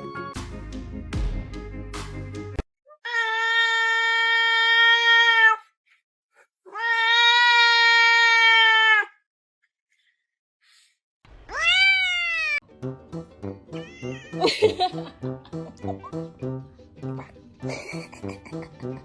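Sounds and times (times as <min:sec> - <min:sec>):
cat meowing: 0:03.0 - 0:05.6, 0:06.7 - 0:09.2, 0:11.5 - 0:12.6, 0:13.8 - 0:14.4.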